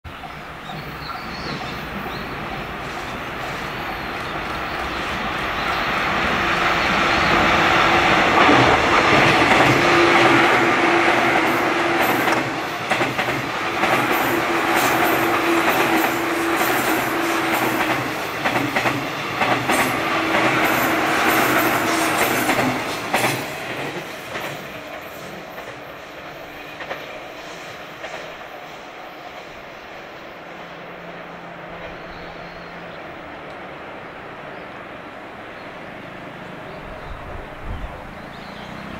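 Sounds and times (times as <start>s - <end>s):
train wheels clattering over rail joints: 7.7s - 28.5s.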